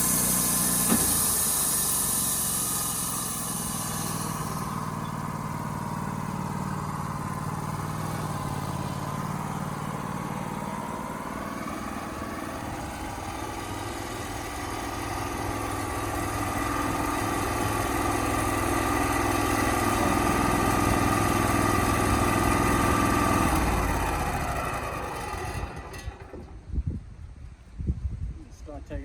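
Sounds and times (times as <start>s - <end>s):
engine running: 0.0s - 26.8s.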